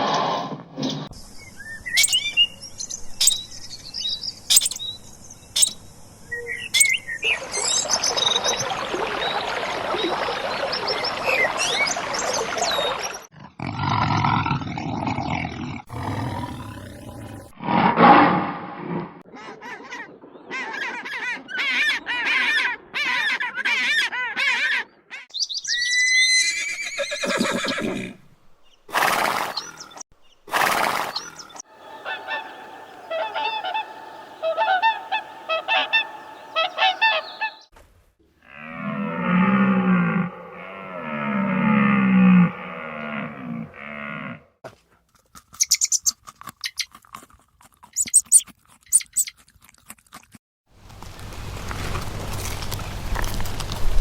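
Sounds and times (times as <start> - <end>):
animal calls: 1.4 - 3.6, 4.3 - 7.1, 30.6 - 37.7, 48.0 - 49.3.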